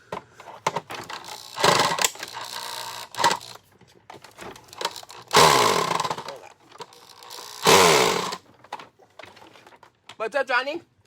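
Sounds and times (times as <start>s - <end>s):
clicks and rattles of parts: 0.0s - 10.2s
small electric motor running: 1.2s - 3.6s, 4.8s - 8.4s.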